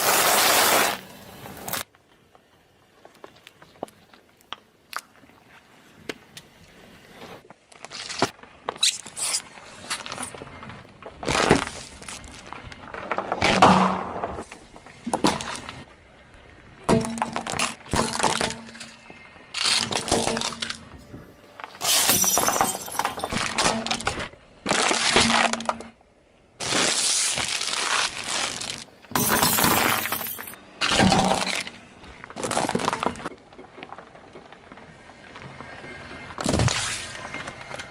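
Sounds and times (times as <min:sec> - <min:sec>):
objects crushed under car tyres: 0:21.6 - 0:26.0, 0:26.6 - 0:33.3.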